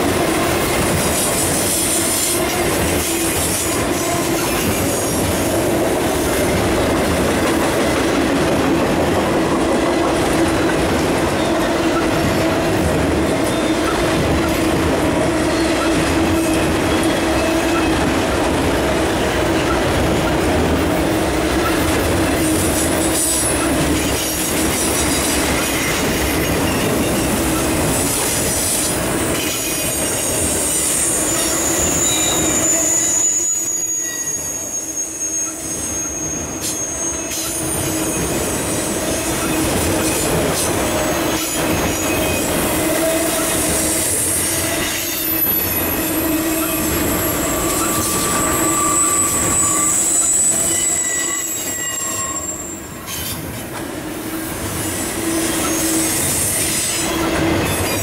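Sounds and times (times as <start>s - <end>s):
wheel squeal: 29.6s - 40.3s, 41.2s - 53.4s, 55.0s - 58.0s
thin high-pitched squeal: 30.6s - 38.3s, 46.5s - 53.3s.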